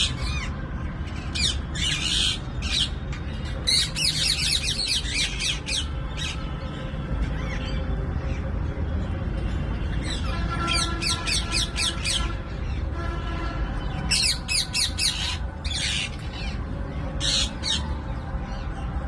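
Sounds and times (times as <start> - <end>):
parrots squawking: 0.0 - 6.5, 10.0 - 12.9, 14.0 - 16.6, 17.2 - 18.0.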